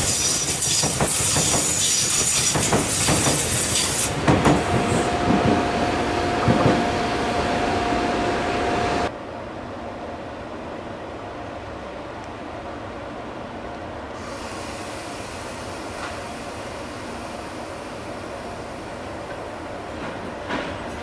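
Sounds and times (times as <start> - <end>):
train wheels clacking with squeal: 0.0 - 4.8.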